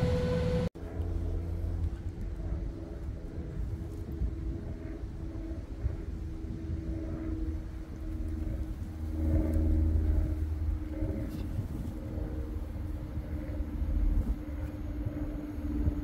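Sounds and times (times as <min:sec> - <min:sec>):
diesel train engine rumble: 0:00.0 - 0:03.9.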